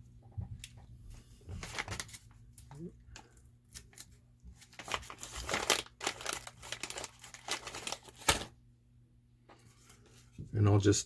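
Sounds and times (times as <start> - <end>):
crinkling and rustling: 0.3 - 8.6.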